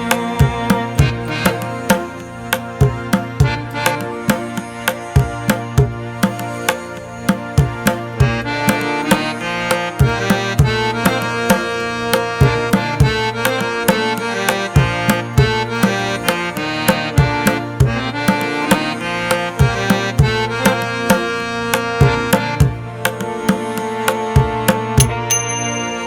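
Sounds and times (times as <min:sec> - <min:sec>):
quick drum beat: 0:00.0 - 0:02.1
sustained melodic instruments: 0:00.0 - 0:26.0.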